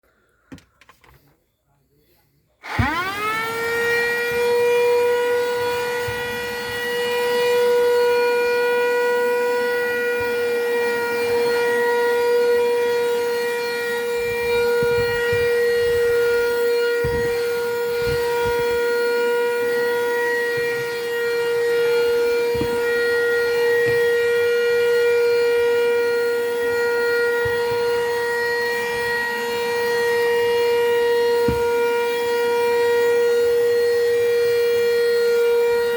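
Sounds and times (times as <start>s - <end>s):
vacuum cleaner motor whining: 2.6s - 35.9s.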